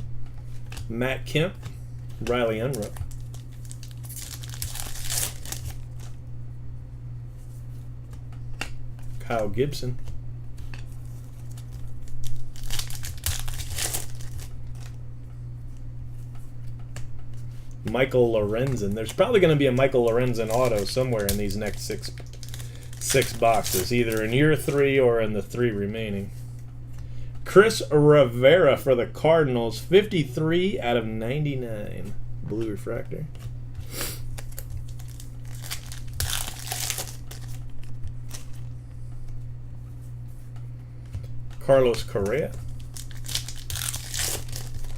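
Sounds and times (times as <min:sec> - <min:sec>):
steady low hum: 0:00.0 - 0:44.9
plastic wrapper crinkling and tearing: 0:02.2 - 0:06.2, 0:10.8 - 0:15.0, 0:18.6 - 0:24.9, 0:34.2 - 0:38.6, 0:42.0 - 0:44.9.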